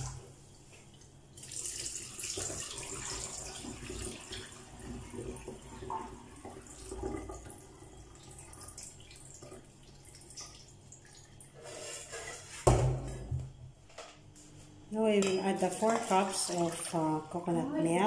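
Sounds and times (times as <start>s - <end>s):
water trickling into a sink: 0.8s - 11.8s.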